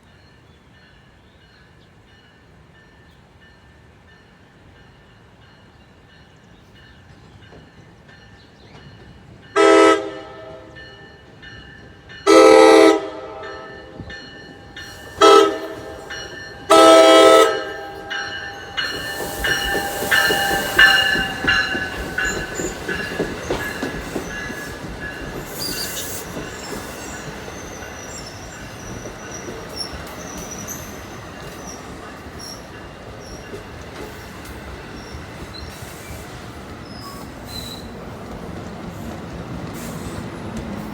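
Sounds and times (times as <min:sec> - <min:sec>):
train horn blasts: 0:09.6 - 0:10.9, 0:12.2 - 0:14.1, 0:14.8 - 0:22.3
train clatter: 0:14.0 - 0:40.9
train wheels squealing on rails: 0:14.0 - 0:40.9.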